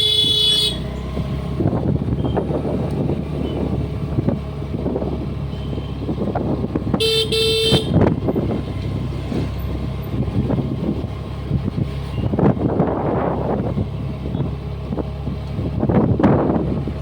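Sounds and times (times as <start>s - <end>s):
vehicle horn: 0.0s - 0.9s, 6.9s - 8.1s
scooter engine running: 0.0s - 8.6s
road and wind noise: 0.0s - 17.0s.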